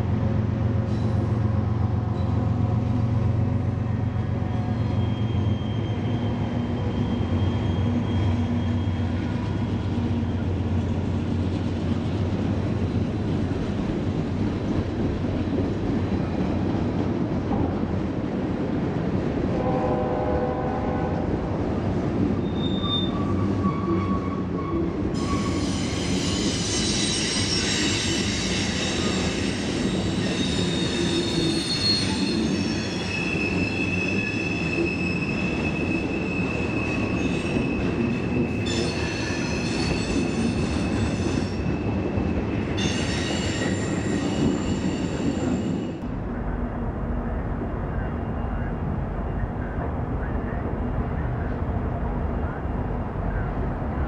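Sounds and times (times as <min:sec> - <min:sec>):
freight train rumbling past: 0:00.0 - 0:54.0
train wheels squealing on rails: 0:00.8 - 0:03.0, 0:03.9 - 0:11.0, 0:22.4 - 0:46.0, 0:47.9 - 0:50.6.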